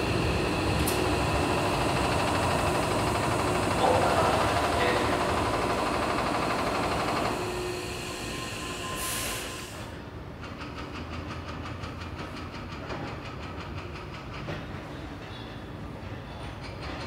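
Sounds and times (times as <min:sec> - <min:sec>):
train low rumble: 0:00.0 - 0:17.0
air hiss: 0:08.0 - 0:10.0.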